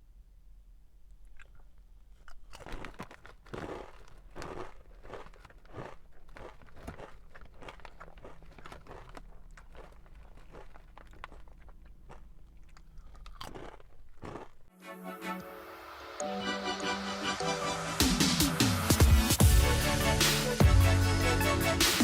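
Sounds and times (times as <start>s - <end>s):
person chewing crunchy food: 0.9s - 14.8s.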